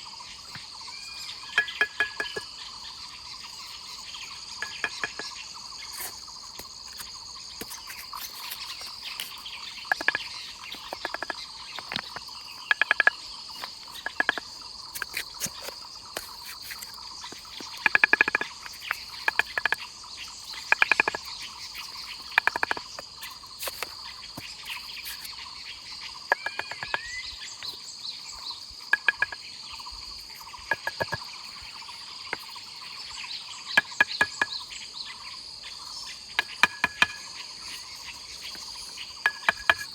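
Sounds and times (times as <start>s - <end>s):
insects chirring: 0.0s - 39.9s
sharp knocks and clicks: 1.5s - 2.5s, 4.6s - 5.4s, 6.6s - 19.9s, 20.5s - 24.5s, 26.3s - 27.8s, 28.9s - 29.5s, 30.4s - 31.3s, 33.7s - 34.7s, 36.4s - 37.4s, 38.4s - 39.9s.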